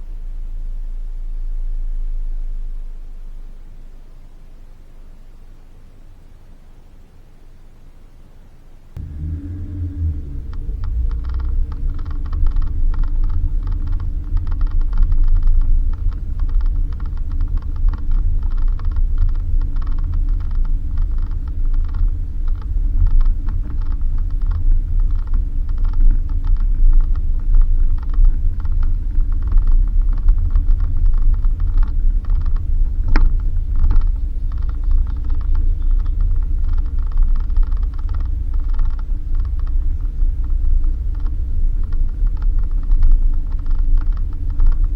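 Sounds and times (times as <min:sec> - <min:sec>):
engine and road drone: 0:00.0 - 0:06.9, 0:08.9 - 0:44.9
car body creaking and rattling: 0:09.0 - 0:44.9.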